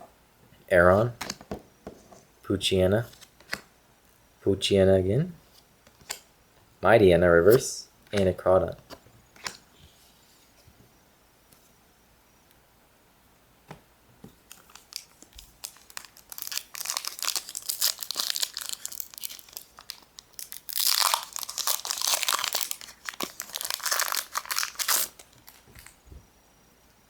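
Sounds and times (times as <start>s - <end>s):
foil wrapper crinkling and tearing: 14.5s - 26.0s.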